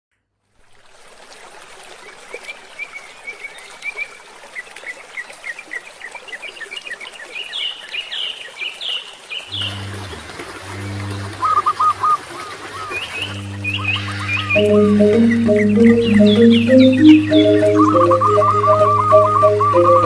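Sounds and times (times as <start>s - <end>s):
running water hiss: 0.5s - 14.6s
birds chirping: 10.9s - 20.0s
low steady tone: 14.5s - 20.0s.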